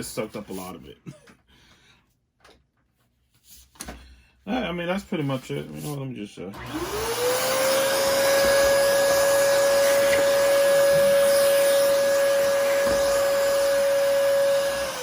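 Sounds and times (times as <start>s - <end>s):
vacuum cleaner motor whining: 6.5s - 15.0s.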